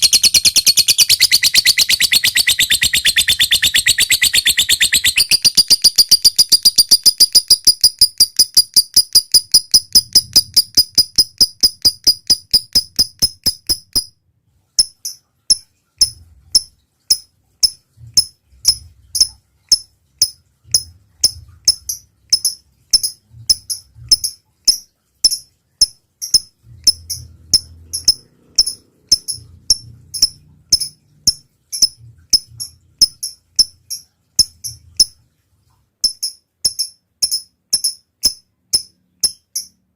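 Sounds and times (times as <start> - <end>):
lovebird singing: 0.0 - 14.1, 26.2 - 35.1.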